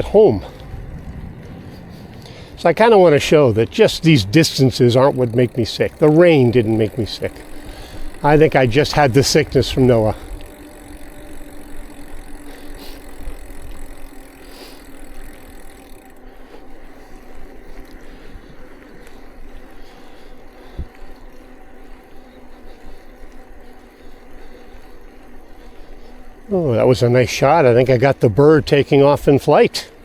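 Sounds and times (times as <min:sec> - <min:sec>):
wind rumbling on microphone: 0:00.0 - 0:14.3
bicycle tyre and road noise: 0:00.0 - 0:30.0
faint steady hum: 0:00.0 - 0:30.0.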